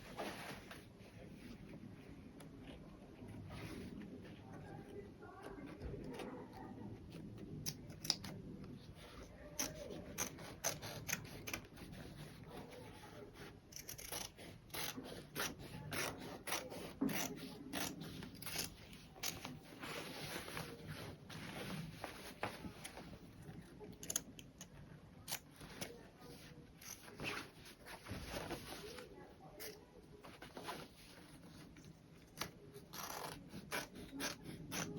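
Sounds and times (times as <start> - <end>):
fabric rubbing and rustling: 0.0 - 5.2, 17.4 - 23.4, 26.0 - 29.4.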